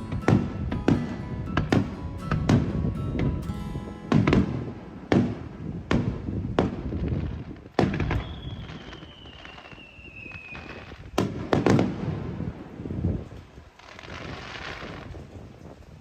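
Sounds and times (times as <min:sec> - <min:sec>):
firework shells booming: 0:05.1 - 0:09.8
long falling whistle: 0:08.2 - 0:10.7.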